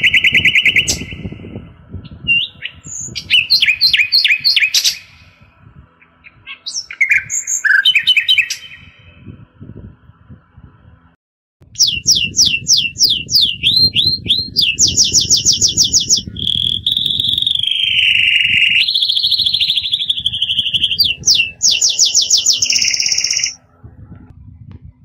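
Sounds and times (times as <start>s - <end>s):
bird-song ringtone: 0.0s - 1.4s, 6.0s - 9.2s, 11.8s - 23.6s.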